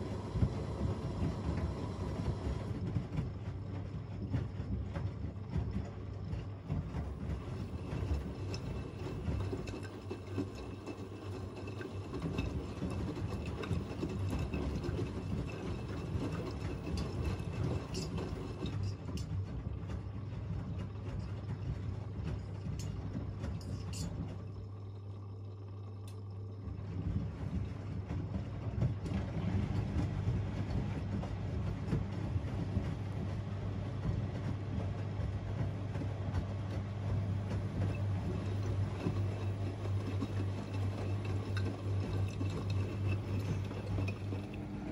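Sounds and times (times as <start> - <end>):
steady motor hum: 0.0 - 44.9
washing machine drums tumbling: 0.0 - 44.9
water sloshing: 37.4 - 44.9.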